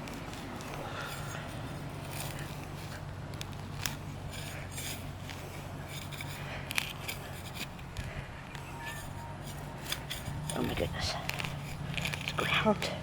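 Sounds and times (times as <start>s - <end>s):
soil scraping and crackling: 0.0s - 13.0s
steady low hum: 0.0s - 13.0s.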